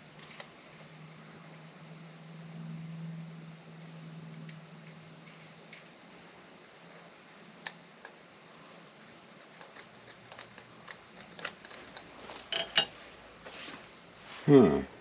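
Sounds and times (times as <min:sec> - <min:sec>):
small plastic parts clicking: 0:09.1 - 0:12.1.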